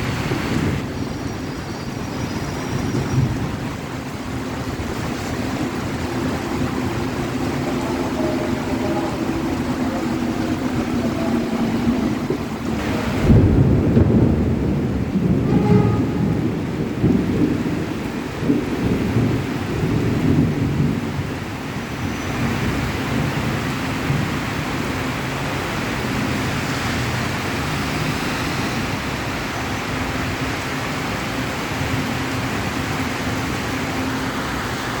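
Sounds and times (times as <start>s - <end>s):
low rumbling: 0.0s - 21.6s
heavy rain pouring: 0.0s - 35.0s.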